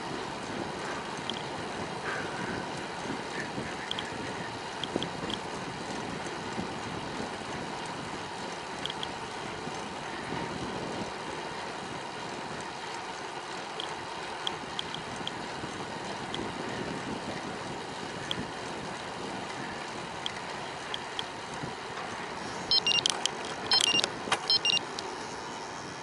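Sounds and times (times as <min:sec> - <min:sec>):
wind over microphone: 0:00.0 - 0:08.4, 0:09.4 - 0:12.6, 0:14.9 - 0:22.6
bicycle tyre and road noise: 0:00.0 - 0:26.0.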